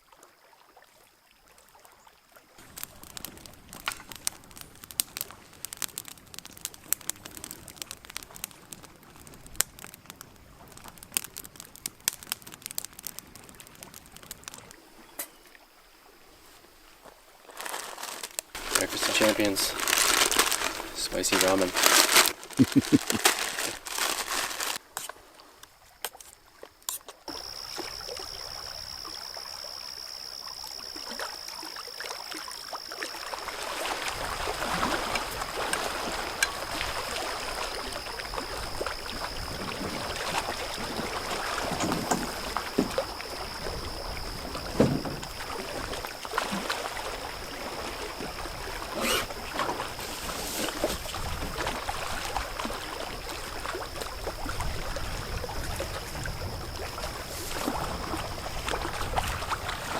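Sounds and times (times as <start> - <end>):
paddle strokes: 16.4 - 27.9, 33.2 - 54.1
water washing against hull: 17.4 - 25.5, 32.9 - 59.9.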